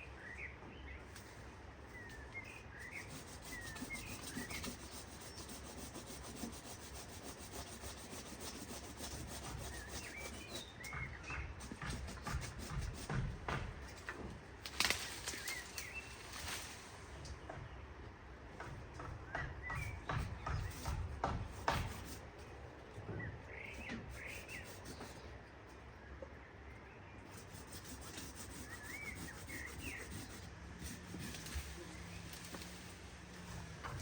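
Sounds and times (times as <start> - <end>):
small birds chirping: 0.0 - 14.1, 14.8 - 34.0
rubbing and scraping strokes: 2.5 - 14.1, 19.7 - 22.5, 23.6 - 25.3, 27.2 - 34.0.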